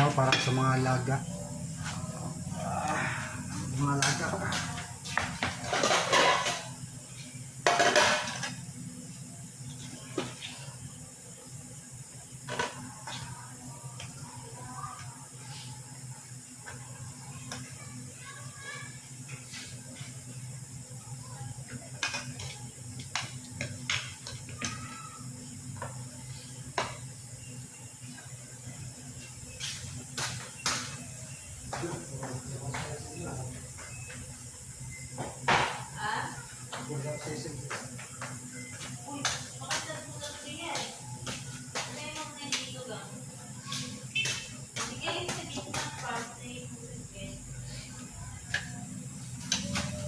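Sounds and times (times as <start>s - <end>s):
utensils clinking against dishes: 0.0s - 0.6s, 4.0s - 6.8s
steady low hum: 0.0s - 50.0s
utensils clattering against plate: 5.4s - 6.8s.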